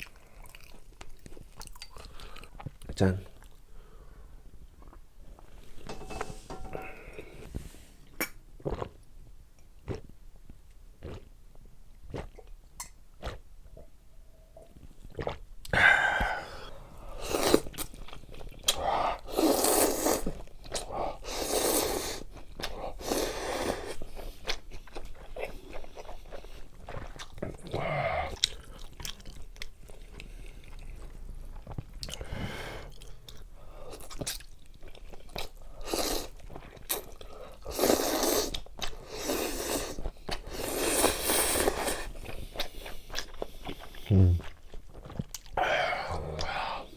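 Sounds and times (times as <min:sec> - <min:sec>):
person chewing and crunching: 0:00.0 - 0:03.6, 0:09.8 - 0:11.4, 0:12.0 - 0:13.4, 0:15.0 - 0:15.4, 0:17.2 - 0:46.6.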